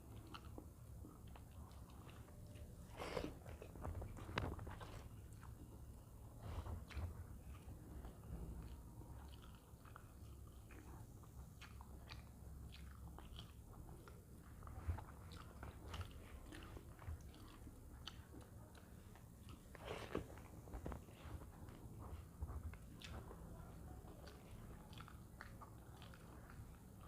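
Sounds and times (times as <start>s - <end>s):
person chewing: 0.0s - 27.0s.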